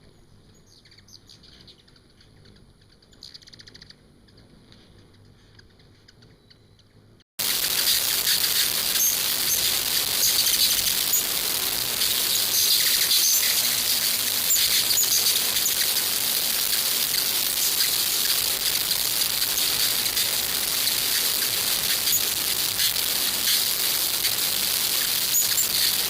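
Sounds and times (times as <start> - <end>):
hummingbirds chirping: 0.2 - 6.6, 7.4 - 26.0
high-pitched buzz: 7.4 - 26.0.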